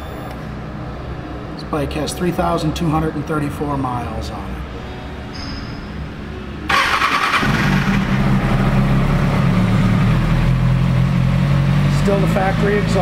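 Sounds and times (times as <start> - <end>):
electric starter cranking: 6.7 - 8.0
motorcycle engine idling: 7.0 - 13.0.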